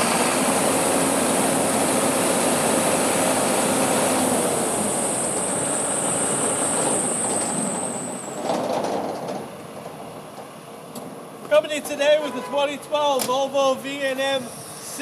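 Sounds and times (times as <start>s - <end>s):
heavy truck rumbling past: 0.0s - 10.9s.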